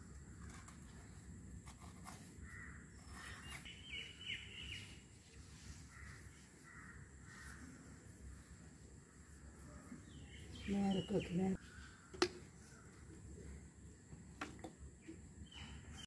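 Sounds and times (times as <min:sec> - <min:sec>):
low outdoor background noise: 0:00.0 - 0:16.0
faint bird calls: 0:05.5 - 0:13.7.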